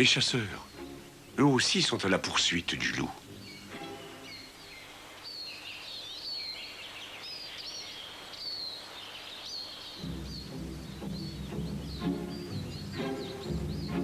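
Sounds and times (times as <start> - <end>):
low music: 0.0 - 4.7, 10.0 - 14.0
birds chirping: 0.0 - 14.0
faint background hiss: 0.0 - 14.0.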